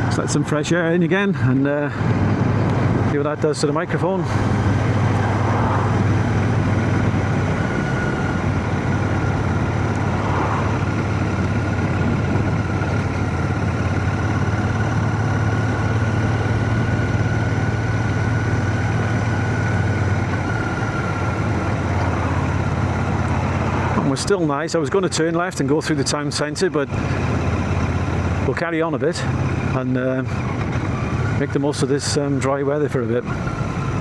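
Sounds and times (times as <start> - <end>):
motorcycle engine running: 0.0 - 34.0
road noise: 0.0 - 34.0
wind noise: 4.3 - 14.4.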